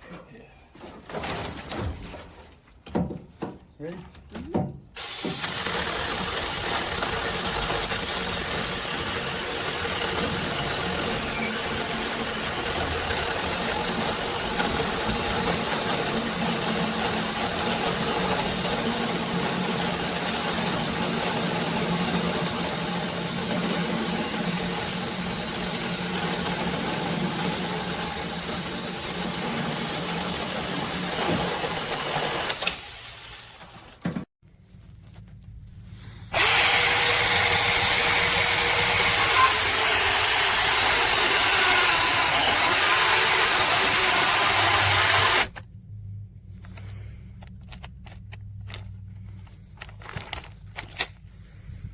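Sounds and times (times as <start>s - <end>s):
mini chainsaw cutting wood: 5.0s - 33.5s, 36.3s - 45.6s.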